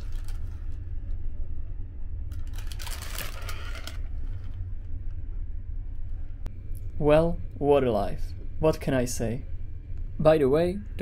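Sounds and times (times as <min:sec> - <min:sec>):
paper and cardboard rustling: 0:00.0 - 0:00.7, 0:02.4 - 0:04.6.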